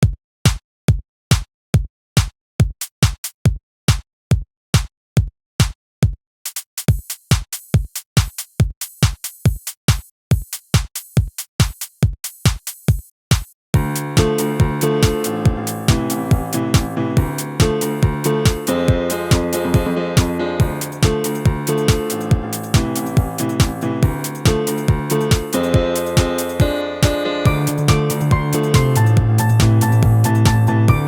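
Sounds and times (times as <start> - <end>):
drum machine beat: 0.0 - 31.0
hi-hats: 6.5 - 31.0
sustained chords and bass: 13.8 - 31.0.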